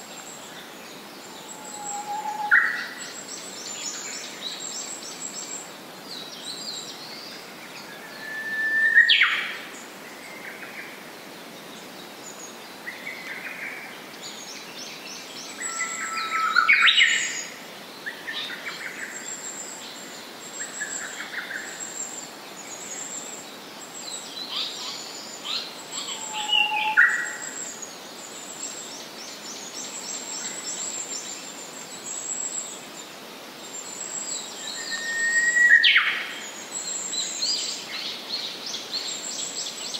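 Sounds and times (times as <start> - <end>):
bird whistling song: 1.4 - 3.1, 8.1 - 9.5, 15.6 - 17.4, 24.5 - 27.7, 34.6 - 37.6.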